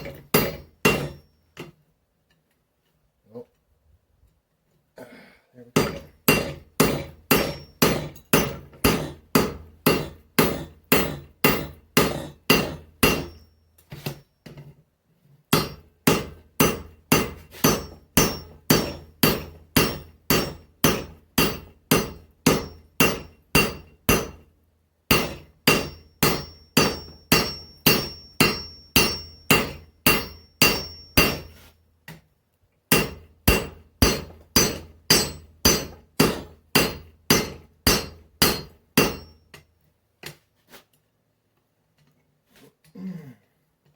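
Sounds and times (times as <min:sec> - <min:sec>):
hammer striking metal on anvil: 0:00.0 - 0:01.2, 0:05.8 - 0:13.5, 0:15.5 - 0:24.5, 0:25.1 - 0:31.7, 0:32.9 - 0:39.7.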